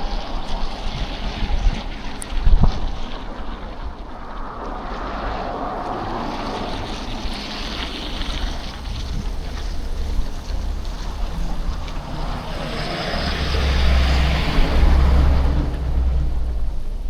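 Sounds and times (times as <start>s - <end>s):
wind rumbling on microphone: 0.0s - 17.0s
city traffic: 3.8s - 17.0s
tyres hissing on slush: 4.6s - 16.6s.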